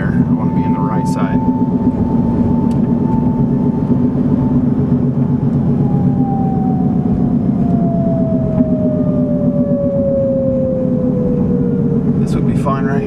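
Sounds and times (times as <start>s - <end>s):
car road and engine noise: 0.0s - 13.0s
thin steady tone: 0.0s - 13.0s.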